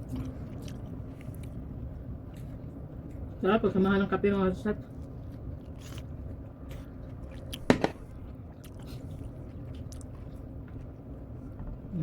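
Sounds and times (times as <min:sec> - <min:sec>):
person chewing cake: 0:00.0 - 0:12.0.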